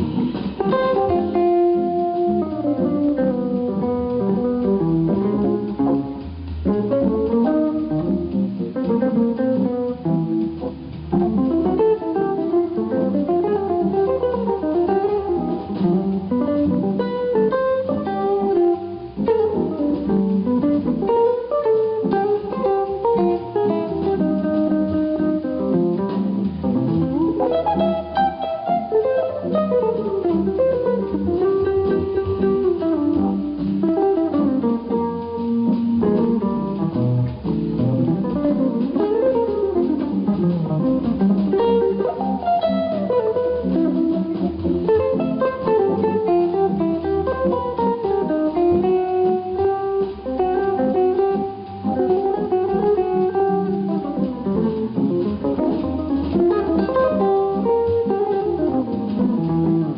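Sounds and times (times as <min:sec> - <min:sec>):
jazz electric guitar solo: 0:00.0 - 0:59.9.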